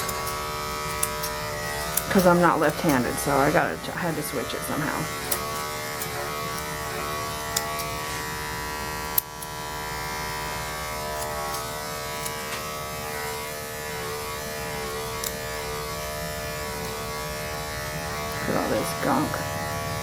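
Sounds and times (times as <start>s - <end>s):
sharp clicks: 0.0s - 9.7s
electric clippers buzzing: 0.0s - 20.0s.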